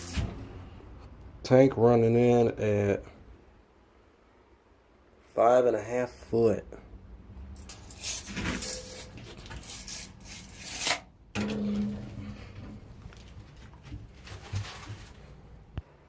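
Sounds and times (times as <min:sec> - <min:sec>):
rubbing and scraping handling noise: 0:07.6 - 0:15.7
low hum: 0:11.3 - 0:14.3.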